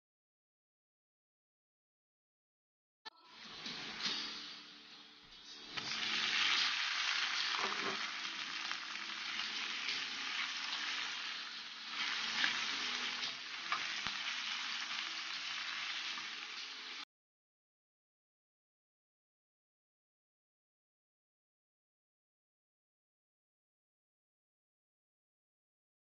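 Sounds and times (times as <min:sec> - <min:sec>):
meat sizzling in a wok: 0:03.4 - 0:17.1
spatula scraping a wok: 0:05.5 - 0:17.0.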